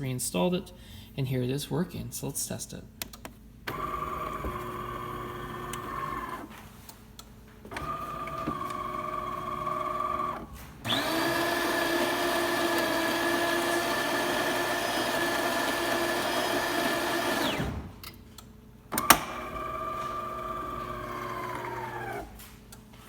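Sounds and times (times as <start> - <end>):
coffee grinder running: 3.7 - 6.4, 7.8 - 17.6, 19.4 - 22.3
espresso machine motor whirring: 3.7 - 6.5, 7.7 - 17.8, 19.0 - 22.3.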